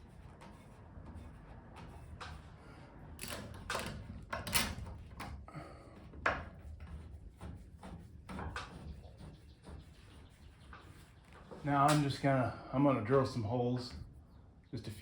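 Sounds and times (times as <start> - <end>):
clamps knocking and scraping: 3.2 - 5.5.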